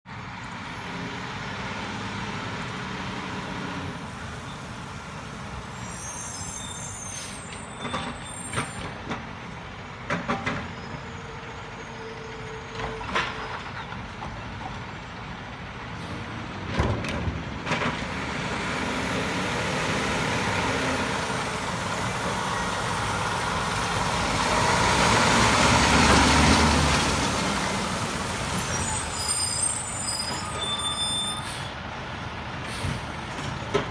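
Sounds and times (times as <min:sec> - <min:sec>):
garbage truck engine running: 0:13.6 - 0:30.1.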